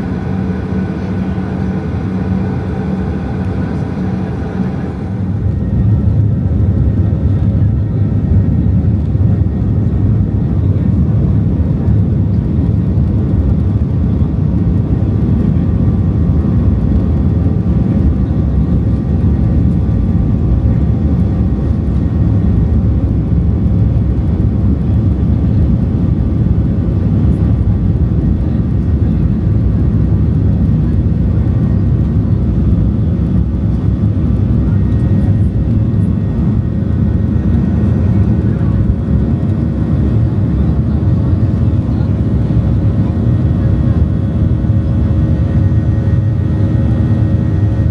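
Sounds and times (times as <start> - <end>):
jet engine drone in cabin: 0.0 - 47.9.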